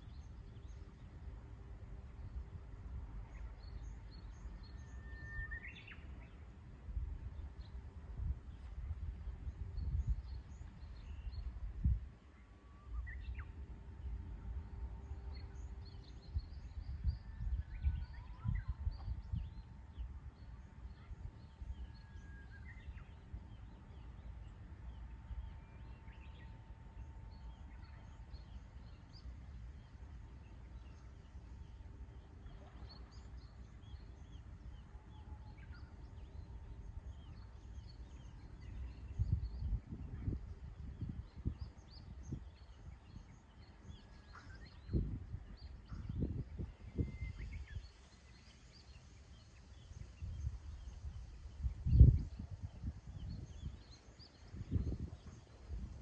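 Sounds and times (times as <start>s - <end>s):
low rumble in gusts: 12.8s - 24.0s, 49.7s - 56.0s.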